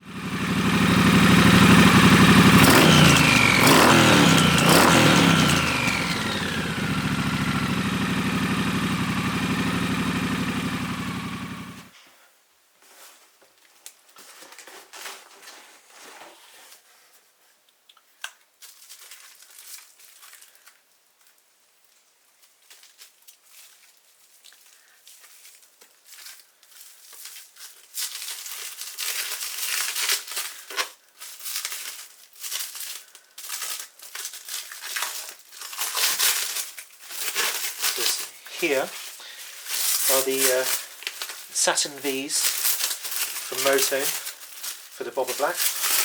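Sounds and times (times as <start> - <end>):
motorcycle engine revving and idling: 0.0 - 11.9, 39.8 - 40.8, 43.5 - 44.3.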